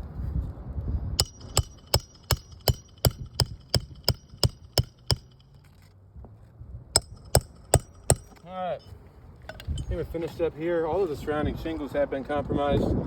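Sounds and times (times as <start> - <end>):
hammer driving nails: 1.2 - 5.6, 7.0 - 8.4.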